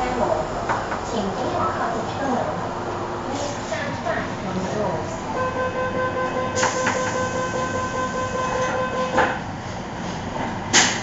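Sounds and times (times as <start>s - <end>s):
train car rumble: 0.0s - 11.0s
loud clunk: 10.4s - 11.0s.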